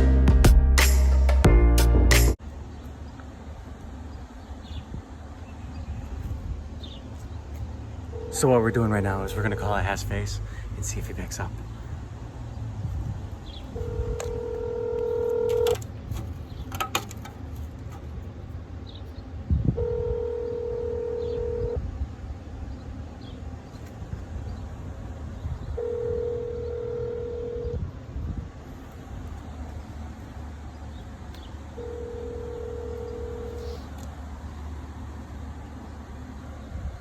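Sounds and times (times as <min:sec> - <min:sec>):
low background hum: 0:01.5 - 0:37.0
telephone ringback tone: 0:08.2 - 0:08.4, 0:13.8 - 0:15.8, 0:19.8 - 0:21.8, 0:25.8 - 0:27.8, 0:31.8 - 0:33.6.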